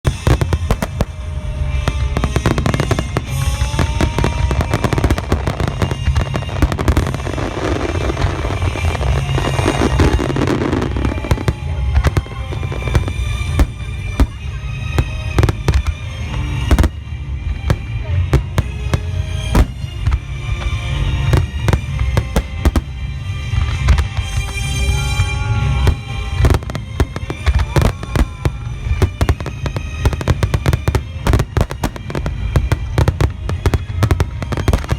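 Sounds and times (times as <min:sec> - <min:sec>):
firework sharp cracks: 0:00.1 - 0:17.1, 0:17.7 - 0:24.8
firework booms: 0:00.1 - 0:24.8.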